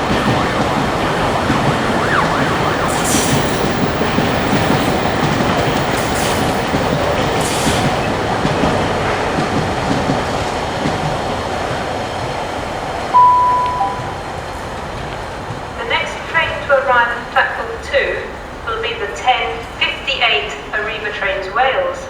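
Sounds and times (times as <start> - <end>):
freight train rumbling past: 0.0 - 22.0
steady electronic tone: 13.2 - 14.5.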